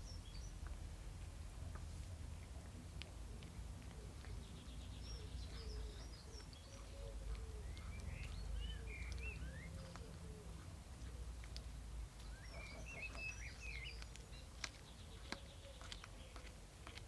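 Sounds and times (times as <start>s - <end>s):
bird chirping: 0.0s - 0.8s, 3.8s - 16.6s.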